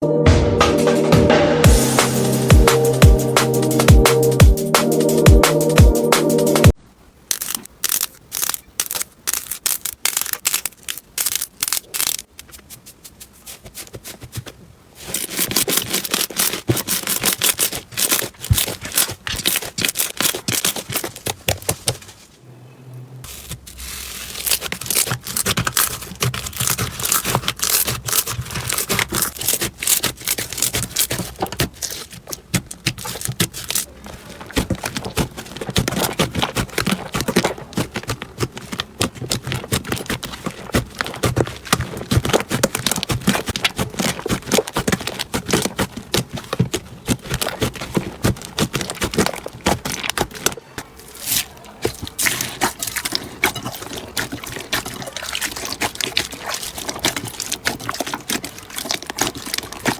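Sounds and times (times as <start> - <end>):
slime sticky clicks and crackles: 15.2 - 21.8.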